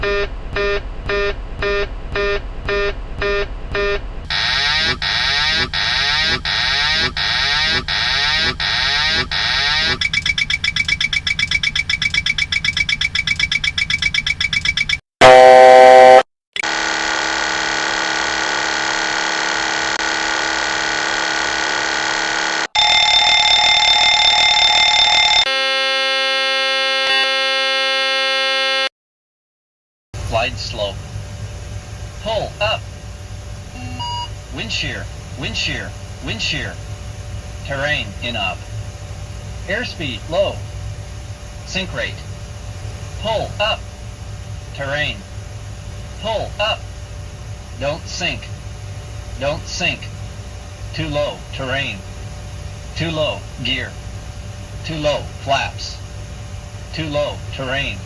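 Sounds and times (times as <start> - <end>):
warbling alert tone: 0.0 - 13.9
intermittent warning beep: 0.0 - 15.0, 22.8 - 25.5, 33.8 - 34.4.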